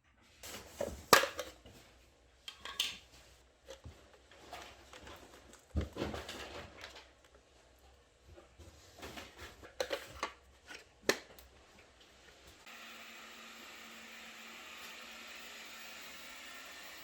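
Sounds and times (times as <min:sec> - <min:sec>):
clicks and knocks of handling: 0:02.4 - 0:07.4, 0:08.3 - 0:11.8.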